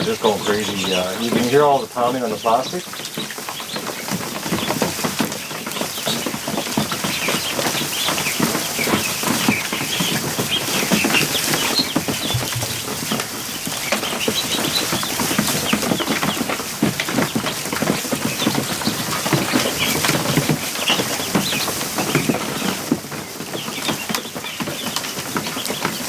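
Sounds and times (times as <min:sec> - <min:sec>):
ducklings peeping: 0:00.0 - 0:26.0
ducklings splashing and flapping: 0:00.0 - 0:26.0
knocks on plastic: 0:12.0 - 0:13.4.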